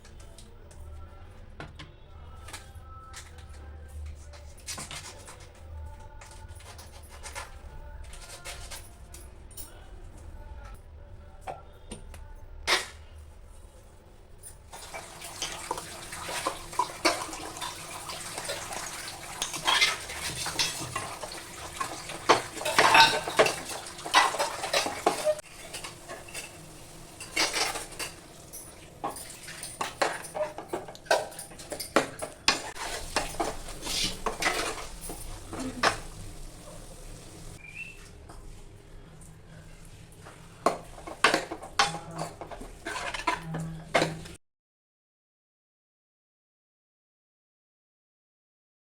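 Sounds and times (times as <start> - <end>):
metal utensil scraping a pot: 18.4 - 26.6, 32.5 - 36.0, 40.9 - 44.1.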